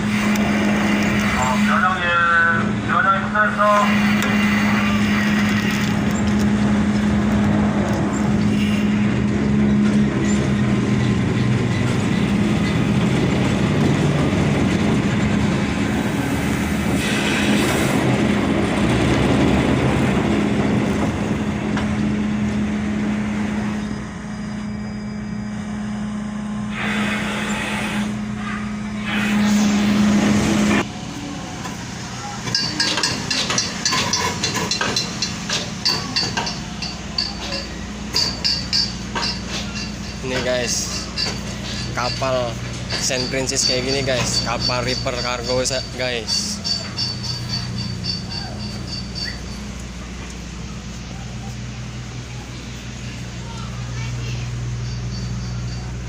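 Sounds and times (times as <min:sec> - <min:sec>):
ship machinery humming: 0:00.0 - 0:56.0.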